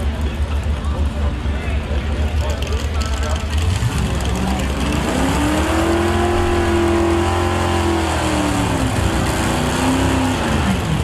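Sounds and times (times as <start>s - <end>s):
truck engine revving under load: 3.4s - 11.0s.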